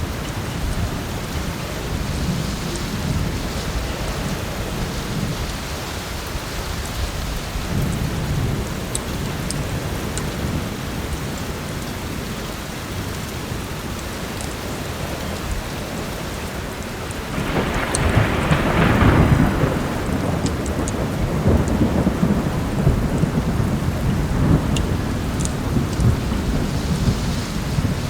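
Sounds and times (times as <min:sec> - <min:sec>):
heavy rain: 0:00.0 - 0:28.0
thunder rumbling: 0:15.2 - 0:28.0.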